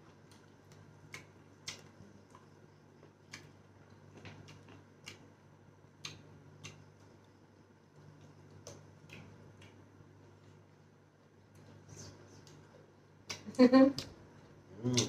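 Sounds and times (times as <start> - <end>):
low steady hum: 0.0 - 15.0
chewing and lip smacks: 0.2 - 5.4, 6.0 - 7.3, 7.9 - 10.6.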